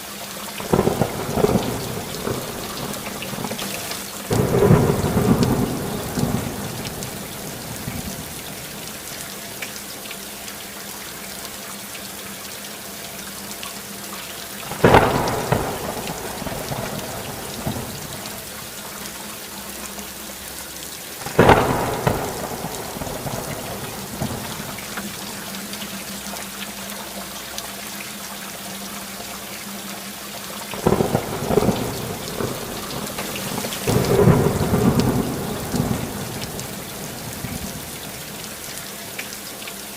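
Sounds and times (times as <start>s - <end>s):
steady rain: 0.0s - 39.9s
thunderclaps: 0.6s - 8.8s, 14.7s - 18.5s, 21.2s - 25.2s, 30.8s - 38.4s
rolling thunder: 0.7s - 8.8s, 14.7s - 18.5s, 21.2s - 25.2s, 30.8s - 38.4s.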